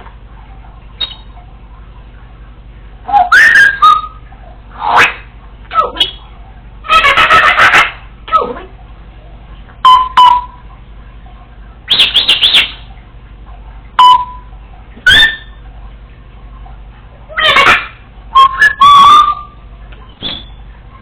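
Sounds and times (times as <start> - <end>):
parrot whistling: 1.0 - 1.3, 3.1 - 4.2, 9.8 - 10.6, 11.9 - 12.9, 14.0 - 15.6, 17.3 - 20.6.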